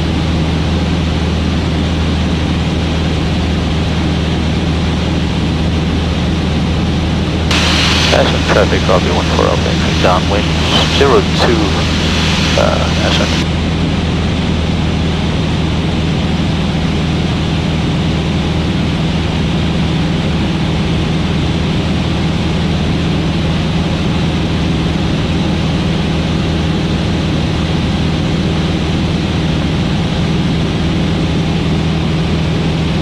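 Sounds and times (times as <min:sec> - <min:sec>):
propeller aircraft engine droning: 0:00.0 - 0:13.5.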